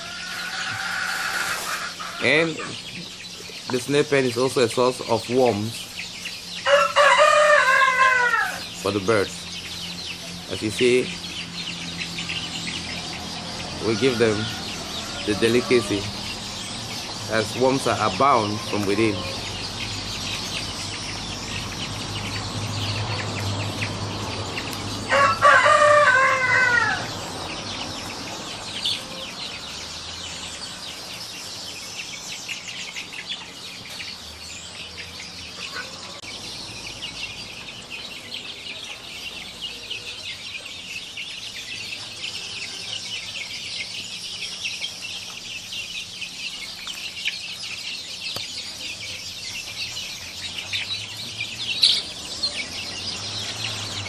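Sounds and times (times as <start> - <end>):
rooster crowing: 0.0 - 2.4, 6.6 - 8.8, 13.3 - 16.6, 25.0 - 27.3.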